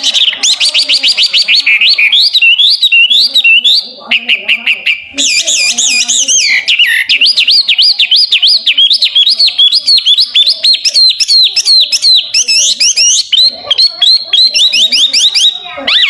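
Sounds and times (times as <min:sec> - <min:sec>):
bird singing whistled notes: 0:05.2 - 0:16.0.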